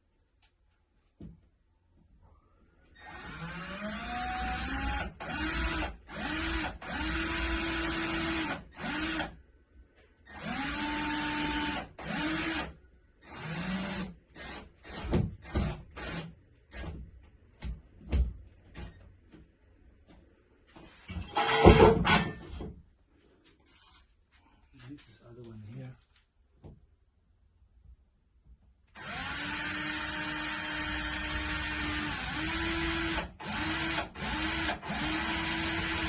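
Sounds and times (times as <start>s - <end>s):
power drill drilling into wall: 3.0s - 9.4s, 10.3s - 17.0s, 29.0s - 36.0s.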